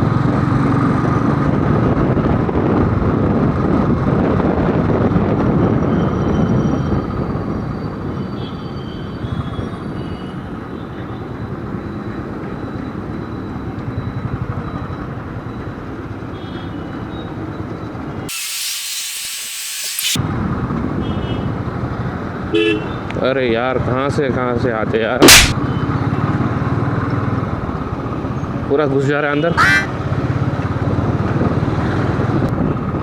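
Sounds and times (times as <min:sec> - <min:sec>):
road and wind noise: 0:00.0 - 0:33.0
loud hiss: 0:18.3 - 0:20.2.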